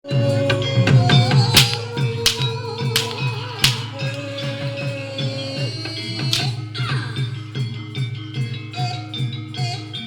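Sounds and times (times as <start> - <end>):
gamelan music: 0.1 - 10.0
sharp percussive strikes: 1.2 - 4.8, 6.2 - 6.8.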